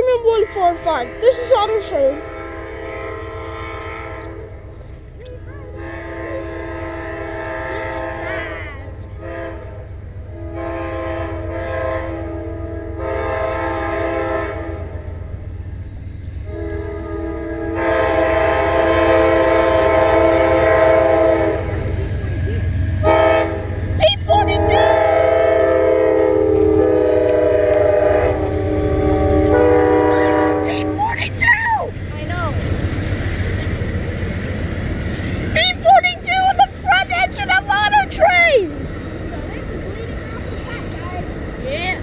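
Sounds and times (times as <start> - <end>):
train rumbling: 0.0 - 42.0
locomotive horn blasts: 0.3 - 4.7, 5.7 - 15.0, 16.4 - 22.0, 23.0 - 31.2.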